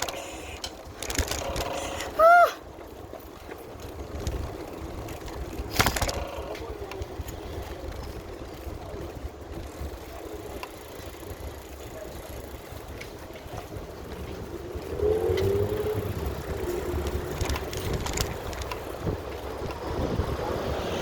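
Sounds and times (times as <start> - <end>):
bicycle rolling noise: 0.0 - 21.0
wind rumble on microphone: 13.0 - 21.0.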